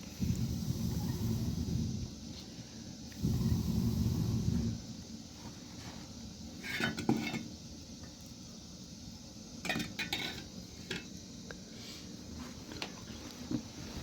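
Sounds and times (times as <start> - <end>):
dishes clattering and clinking: 6.6 - 7.5, 9.6 - 11.1.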